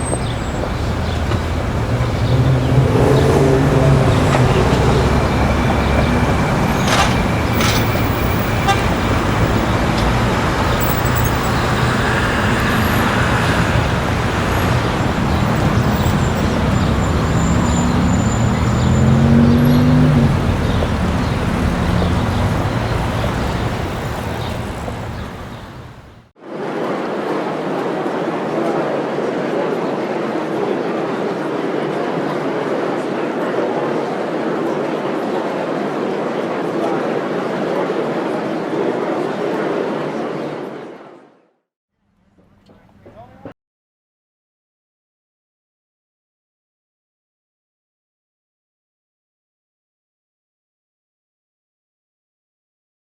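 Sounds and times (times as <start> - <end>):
car horn toot: 0.0 - 11.8
engine hum: 0.0 - 26.3
road vehicles passing: 0.0 - 26.3.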